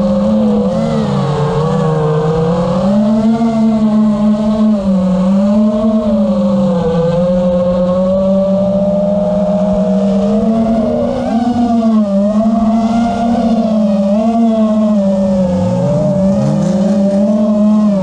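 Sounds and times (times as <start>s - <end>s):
motor buzzing hum: 0.0s - 18.0s.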